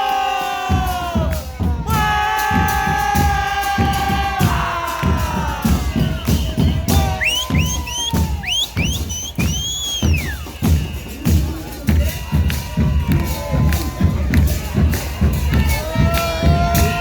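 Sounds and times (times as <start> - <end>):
chorus singing held notes: 0.0 - 8.6
bass drum beats: 0.0 - 17.0.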